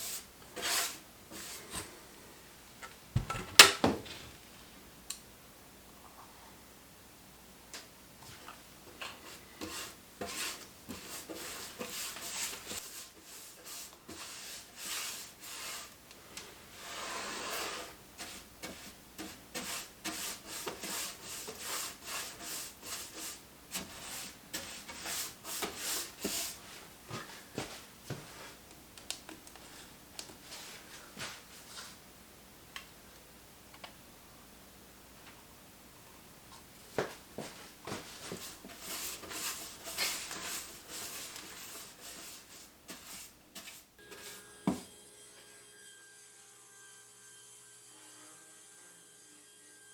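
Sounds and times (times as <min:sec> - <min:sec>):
hand rubbing over wood: 0:37.4 - 0:43.9.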